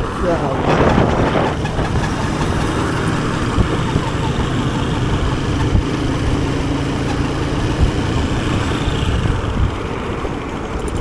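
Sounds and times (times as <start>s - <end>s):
motorcycle engine humming: 0.0s - 11.0s.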